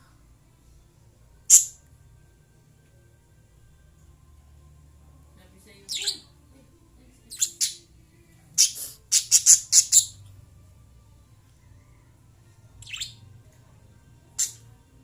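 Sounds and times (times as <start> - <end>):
lovebirds chirping: 5.8 - 6.3, 7.3 - 7.9, 8.6 - 10.2, 12.8 - 13.2, 14.4 - 14.6.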